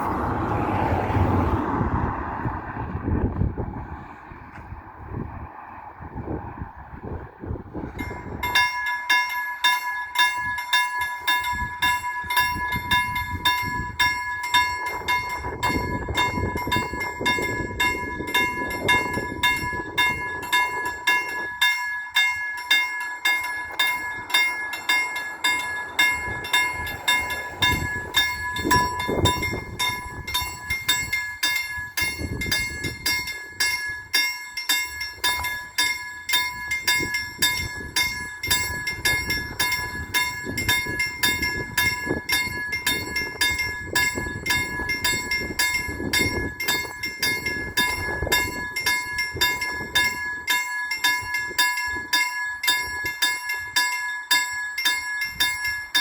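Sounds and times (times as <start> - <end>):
low rumble: 0.0 - 8.6
level crossing warning bell: 7.9 - 56.0.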